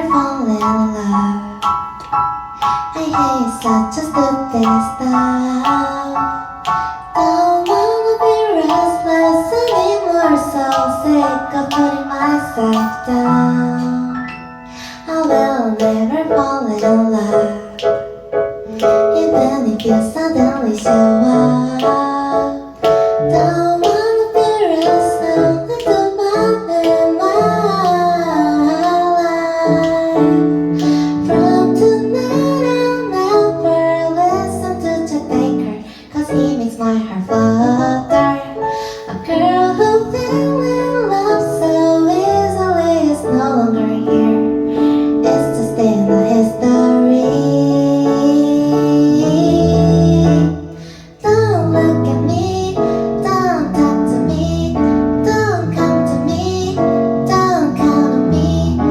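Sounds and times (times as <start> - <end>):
woman singing slow song: 0.0 - 2.0, 2.7 - 58.9
keyboard accompaniment: 0.0 - 58.9.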